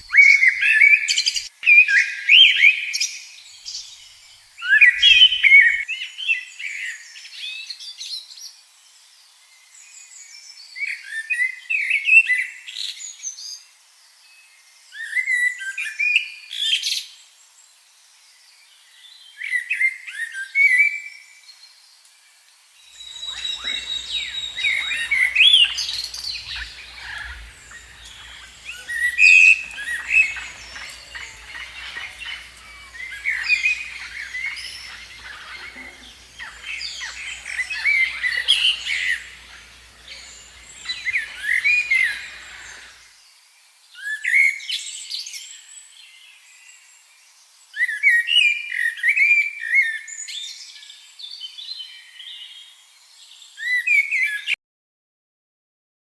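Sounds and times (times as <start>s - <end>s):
birds chirping: 0.0s - 1.5s, 3.7s - 5.8s, 23.0s - 43.0s.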